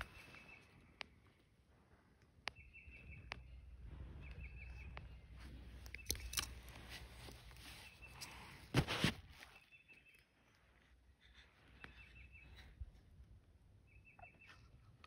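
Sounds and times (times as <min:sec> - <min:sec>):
sharp clicks: 0:05.8 - 0:06.8.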